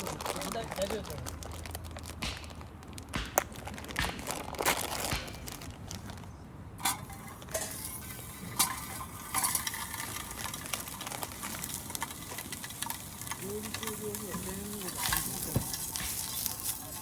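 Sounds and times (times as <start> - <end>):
camp cookware clinking: 6.7 - 17.0.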